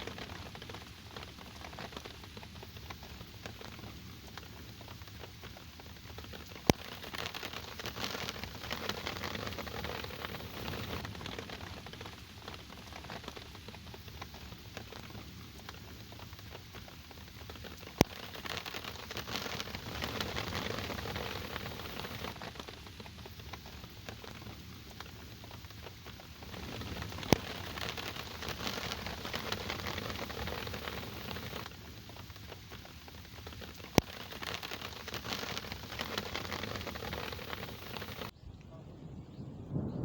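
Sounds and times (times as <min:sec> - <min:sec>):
steady rain: 0:00.0 - 0:38.4.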